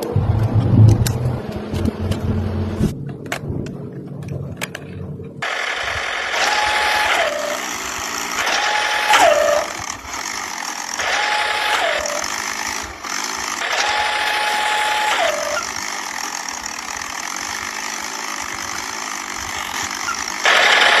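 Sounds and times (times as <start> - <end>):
mechanical running noise: 0.0 - 21.0
motor whining: 5.4 - 21.0.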